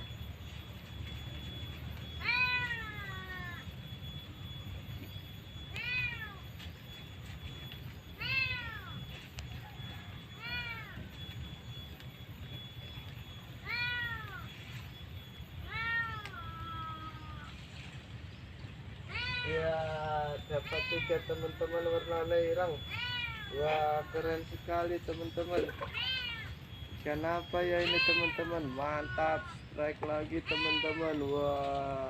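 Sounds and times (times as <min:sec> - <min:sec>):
steady low hum: 0:00.0 - 0:30.5
cat meowing: 0:02.0 - 0:03.6, 0:05.7 - 0:06.4, 0:08.2 - 0:09.0, 0:10.3 - 0:11.0, 0:13.6 - 0:14.5, 0:15.6 - 0:17.6, 0:19.1 - 0:21.6, 0:22.8 - 0:24.2, 0:25.8 - 0:26.5, 0:27.8 - 0:29.6, 0:30.4 - 0:31.3.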